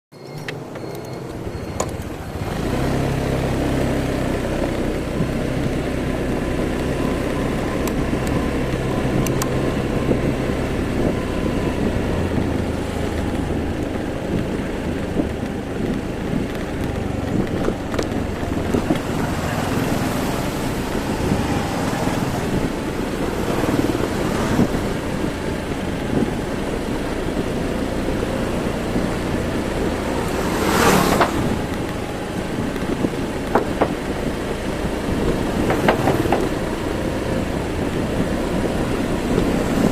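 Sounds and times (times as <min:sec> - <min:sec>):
road noise: 0:00.1 - 0:39.9
wind buffeting microphone: 0:01.3 - 0:39.9
motorbike engine running: 0:01.9 - 0:39.9.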